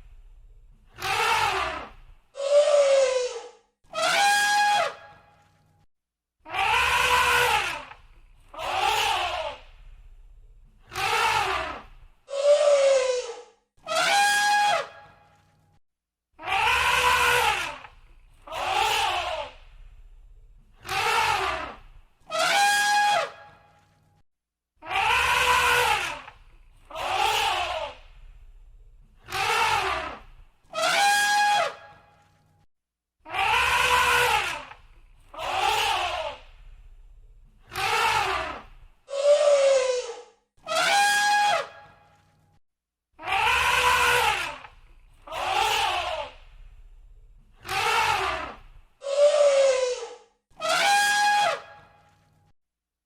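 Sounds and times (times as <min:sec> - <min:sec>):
elephant trumpeting: 0:01.0 - 0:01.8, 0:02.4 - 0:05.0, 0:06.6 - 0:07.9, 0:12.3 - 0:14.9, 0:22.3 - 0:23.5, 0:24.9 - 0:26.2, 0:30.7 - 0:32.0, 0:33.4 - 0:34.7, 0:37.7 - 0:41.9, 0:43.2 - 0:44.7, 0:47.6 - 0:51.9.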